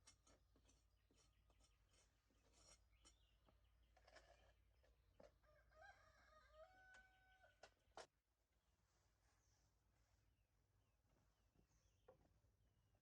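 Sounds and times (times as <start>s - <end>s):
rooster crowing faintly: 5.3s - 7.8s.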